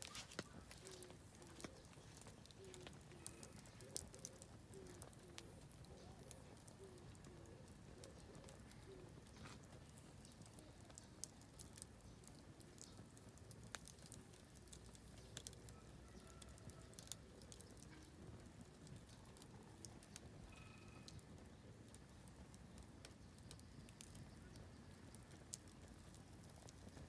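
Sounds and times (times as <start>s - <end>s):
faint bird calls: 0.0s - 11.4s
campfire crackling: 0.0s - 27.0s.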